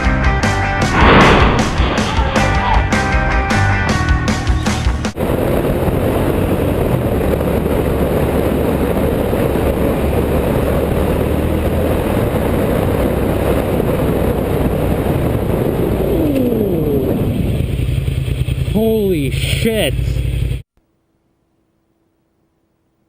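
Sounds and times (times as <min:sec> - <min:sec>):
tyres on the road: 0:00.0 - 0:20.6
vehicle engine running: 0:05.0 - 0:20.7.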